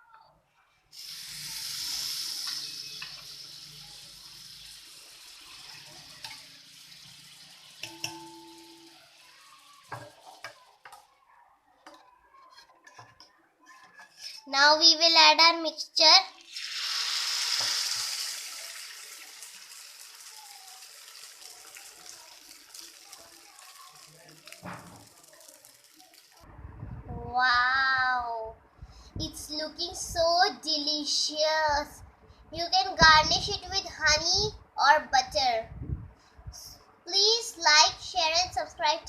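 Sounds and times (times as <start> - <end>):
butter sizzling on a hot griddle: 1.0 - 10.7, 16.5 - 26.4.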